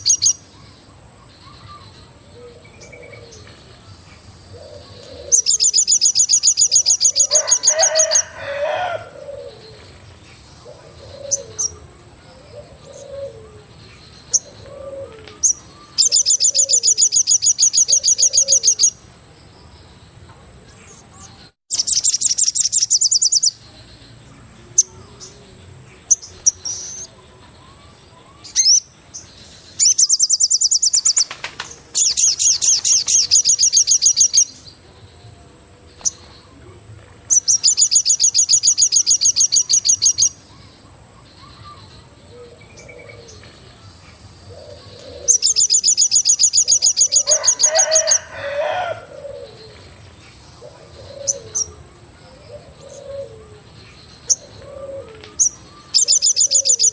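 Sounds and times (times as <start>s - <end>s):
bird fast trill: 5.2s - 8.6s, 15.4s - 19.0s, 21.7s - 23.6s, 28.5s - 28.9s, 29.8s - 34.5s, 37.3s - 40.7s
soft bird chirps: 20.7s - 34.9s, 49.3s - 56.9s.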